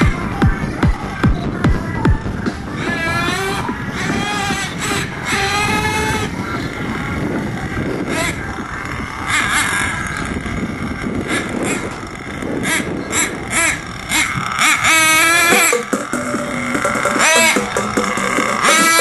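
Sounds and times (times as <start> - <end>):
model truck engine revving: 2.4 - 19.0.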